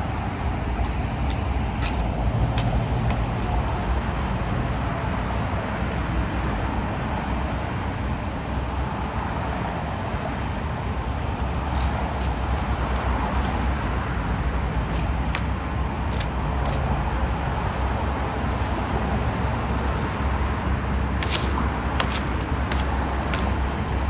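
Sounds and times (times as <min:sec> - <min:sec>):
diesel machinery rumbling: 0:00.0 - 0:24.0.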